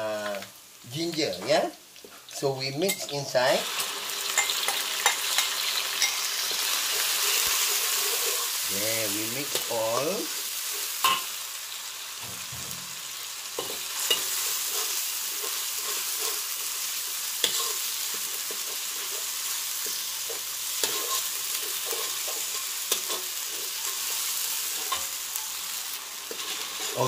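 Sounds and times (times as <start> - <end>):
paste sizzling in hot oil: 1.8 - 27.0
metal spatula scraping a pan: 4.3 - 8.6, 13.6 - 27.0.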